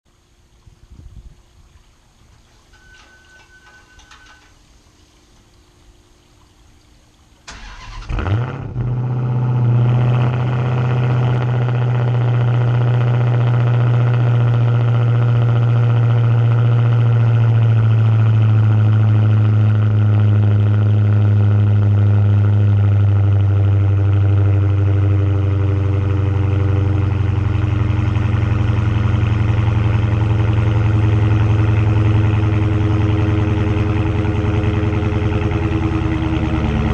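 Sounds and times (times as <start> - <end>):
car engine cranking: 7.5 - 15.5, 26.0 - 36.9
engine idling loudly: 9.6 - 36.9.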